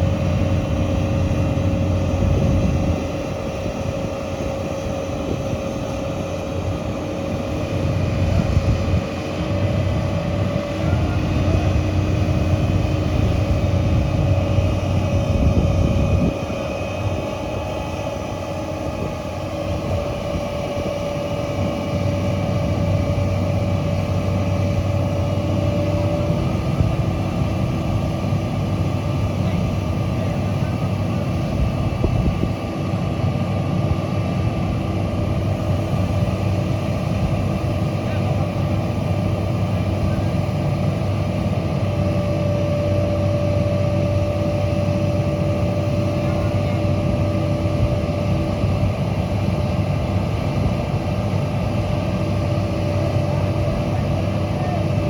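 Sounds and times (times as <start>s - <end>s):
diesel engine rumbling under load: 0.0s - 55.0s
steady machine whine: 0.0s - 55.0s.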